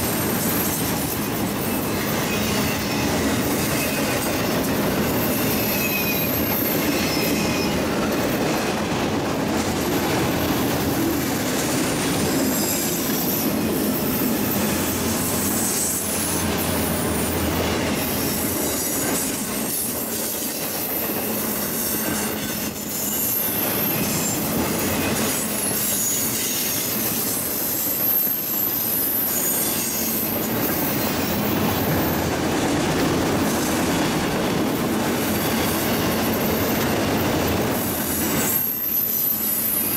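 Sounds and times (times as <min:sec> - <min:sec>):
high-pitched wheel squeal: 0:00.2 - 0:08.2, 0:12.3 - 0:32.2, 0:35.3 - 0:39.9.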